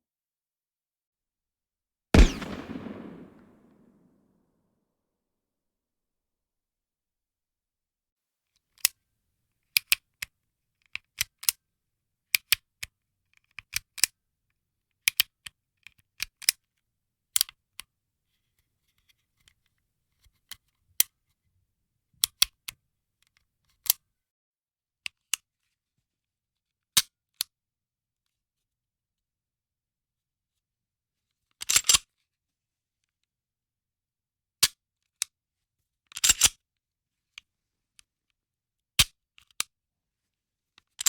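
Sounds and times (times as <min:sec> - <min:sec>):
gun hammer metallic clicks: 0:02.2 - 0:03.5.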